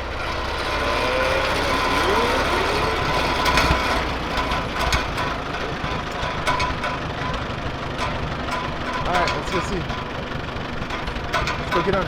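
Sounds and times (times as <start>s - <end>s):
engine hum: 0.0s - 12.0s
people talking: 1.0s - 3.7s, 9.0s - 10.0s, 11.6s - 12.0s.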